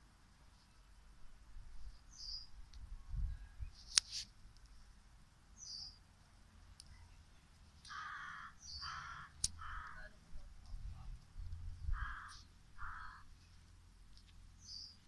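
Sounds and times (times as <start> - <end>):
bird chirp: 1.9 - 4.0, 5.6 - 6.1, 7.8 - 10.1, 11.9 - 15.0
harsh bird calls: 7.8 - 10.1, 11.8 - 13.4
faint low rumble: 9.5 - 14.7.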